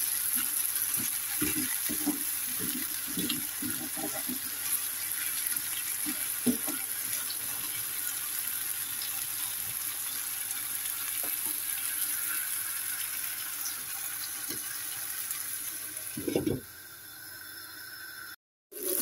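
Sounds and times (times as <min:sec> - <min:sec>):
food sizzling in a frying pan: 0:00.0 - 0:19.0
wooden spatula knocking on pan: 0:01.0 - 0:04.4, 0:06.4 - 0:06.8.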